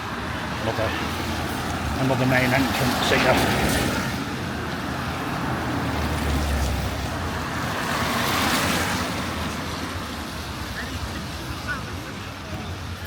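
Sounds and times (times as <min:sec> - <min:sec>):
tyres hissing on wet road: 0:00.0 - 0:12.3
passing vehicle: 0:00.0 - 0:13.0.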